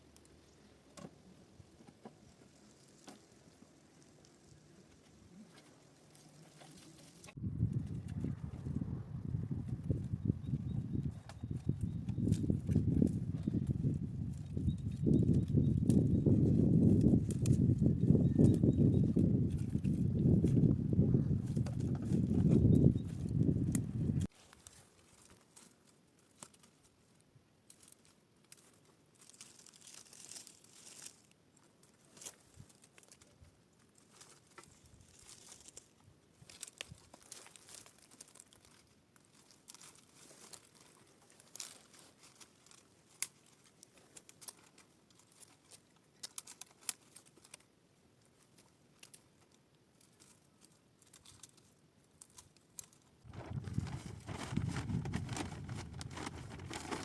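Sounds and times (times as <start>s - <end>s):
faint crinkling and rustling: 0.0s - 8.7s, 11.0s - 57.0s
small clicks and ticks: 41.5s - 53.1s.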